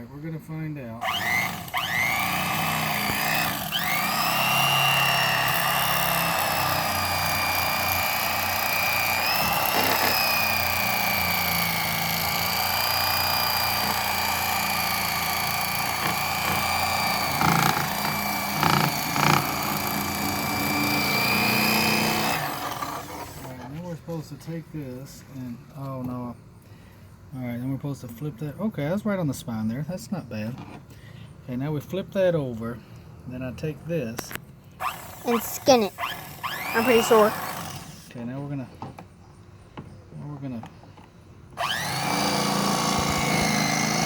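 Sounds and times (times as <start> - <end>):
electric knife motor whine: 1.0 - 23.7, 34.8 - 38.1, 41.6 - 44.0.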